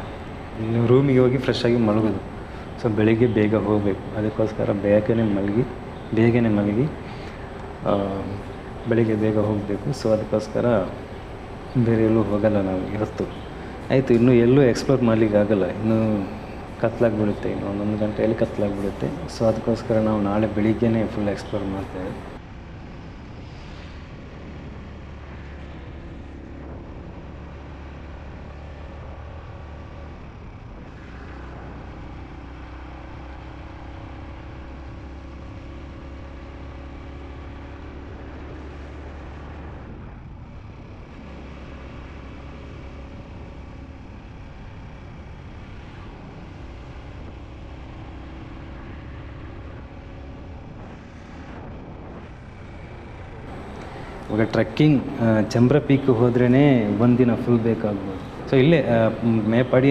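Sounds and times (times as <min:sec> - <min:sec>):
wind and road noise: 0:00.0 - 0:59.9
motorcycle engine running: 0:24.2 - 0:59.9.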